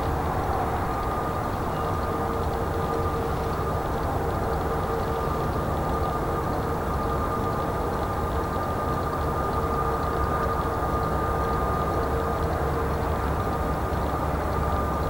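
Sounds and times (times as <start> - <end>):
jet engines running: 0.0 - 4.6.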